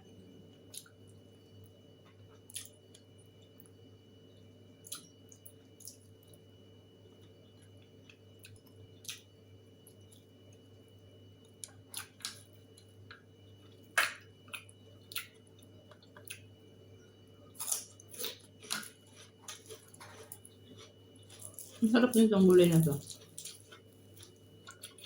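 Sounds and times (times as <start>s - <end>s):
faint steady hum: 0.0s - 25.0s
crunching while chewing: 2.1s - 3.8s, 4.8s - 6.5s, 11.5s - 16.5s, 17.5s - 21.9s, 23.0s - 25.0s.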